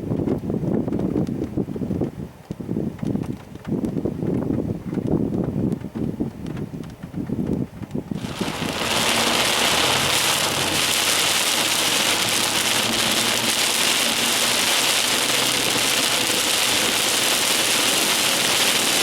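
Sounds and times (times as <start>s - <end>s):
heavy rain spattering: 8.2s - 19.0s.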